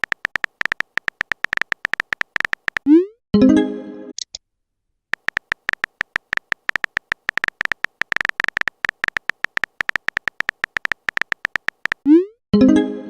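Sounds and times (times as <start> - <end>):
phone keyboard typing clicks: 0.0 - 2.9, 5.2 - 12.2.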